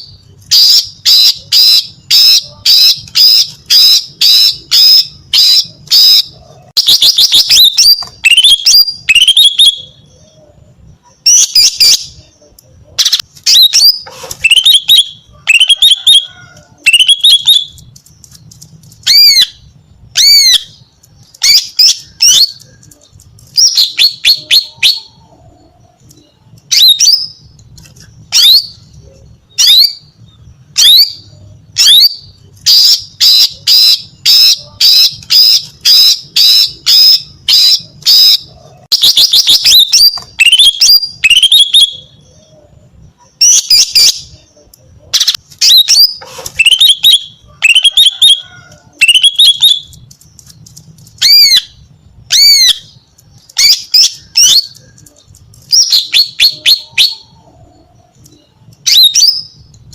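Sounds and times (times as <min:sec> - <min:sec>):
bird chirps and squawks: 0:00.5 - 0:17.8, 0:30.8 - 0:49.9.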